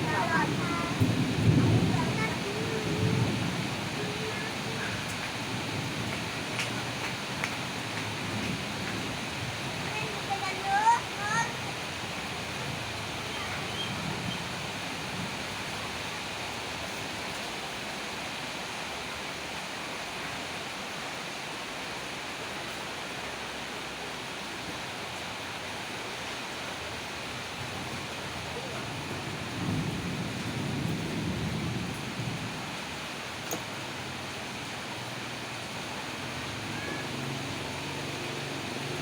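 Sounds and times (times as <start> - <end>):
low roll of thunder: 0.0 - 16.0, 27.6 - 34.2
steady rain falling: 0.0 - 39.0.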